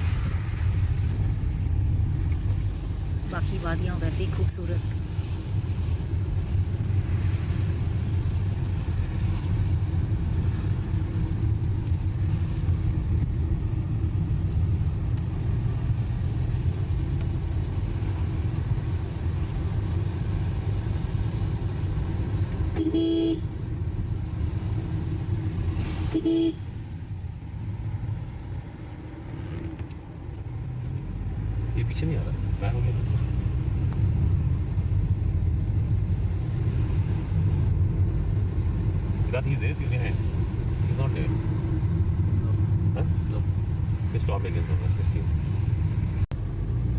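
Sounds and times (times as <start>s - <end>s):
car engine and road rumble: 0.0s - 46.9s
car horn toots: 22.7s - 23.5s, 26.0s - 26.7s.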